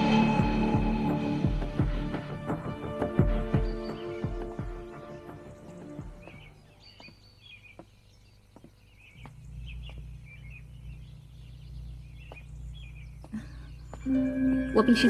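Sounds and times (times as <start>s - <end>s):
small birds chirping: 2.5s - 15.0s
low steady hum: 8.2s - 15.0s.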